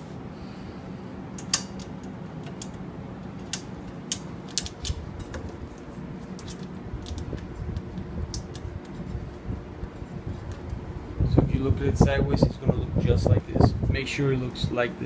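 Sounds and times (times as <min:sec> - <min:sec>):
metal parts clicking and clacking: 0:01.4 - 0:09.1.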